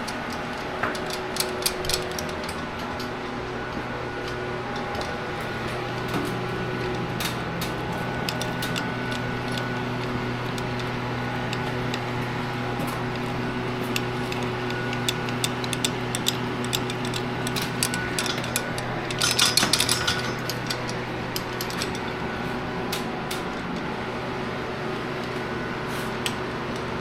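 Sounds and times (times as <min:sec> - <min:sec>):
steady low hum: 0:00.0 - 0:27.0
metal rattling: 0:07.6 - 0:22.5
metallic clicks of hand tools: 0:13.8 - 0:22.1.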